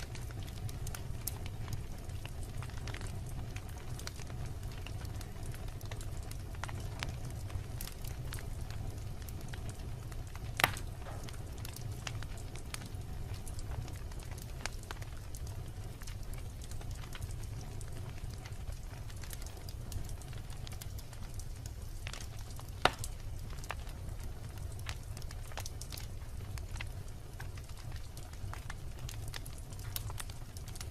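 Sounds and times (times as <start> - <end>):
fire crackling: 0.0 - 30.9
low rumble of flames: 0.0 - 30.9
logs popping: 10.5 - 12.2, 22.1 - 23.8.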